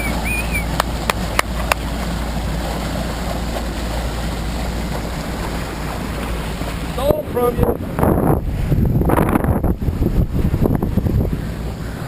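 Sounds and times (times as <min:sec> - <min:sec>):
high whistling tone: 0:00.0 - 0:00.7
boat motor running: 0:00.0 - 0:12.0
rushing water: 0:00.0 - 0:12.0.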